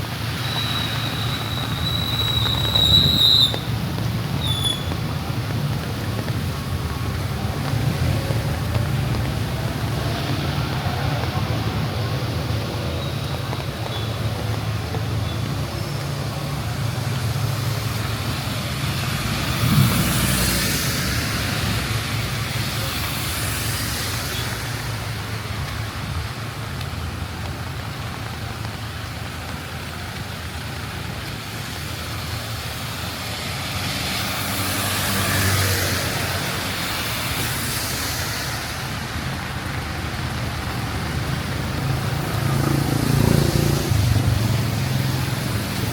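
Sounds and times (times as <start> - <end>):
rain hiss: 0.0 - 45.9
tyres hissing on wet road: 0.0 - 45.9.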